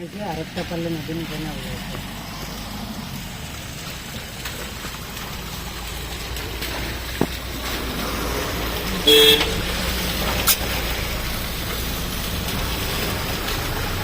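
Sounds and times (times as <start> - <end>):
road traffic rumble: 0.0 - 14.0
vehicle horn toot: 9.0 - 9.6.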